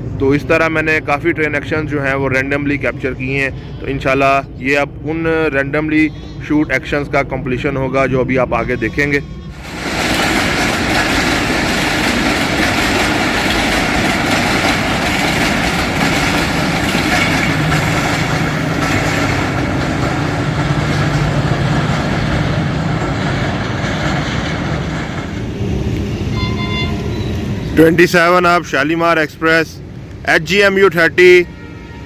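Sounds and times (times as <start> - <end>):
train passing on rails: 0.0 - 32.0.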